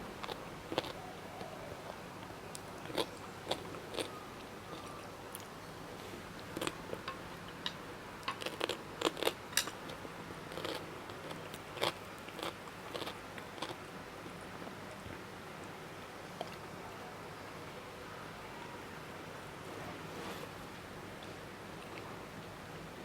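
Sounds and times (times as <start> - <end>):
person chewing crisp food: 0.2 - 1.0, 1.8 - 5.5, 6.4 - 7.6, 8.2 - 15.0.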